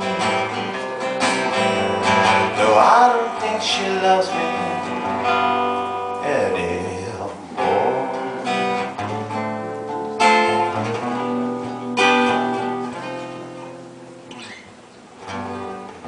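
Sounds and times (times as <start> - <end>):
guitar chords strummed: 0.0 - 16.0.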